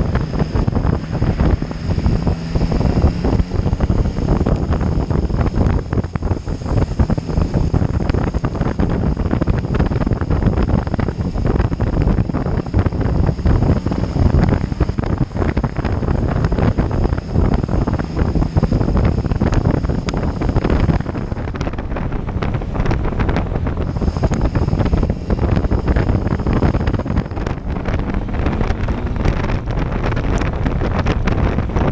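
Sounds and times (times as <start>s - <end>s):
road noise: 0.0s - 31.9s
wind buffeting microphone: 0.0s - 31.9s.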